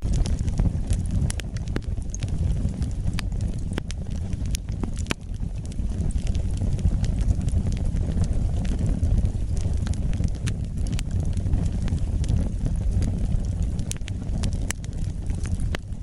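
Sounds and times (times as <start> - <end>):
fire flames rumbling: 0.0 - 16.0
logs crackling and popping: 0.0 - 16.0.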